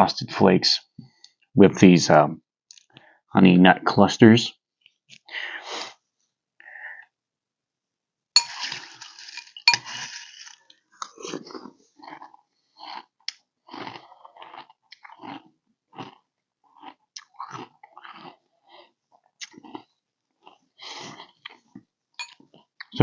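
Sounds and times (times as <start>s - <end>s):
cereal crunching: 8.4s - 18.4s
chewing: 8.8s - 23.0s.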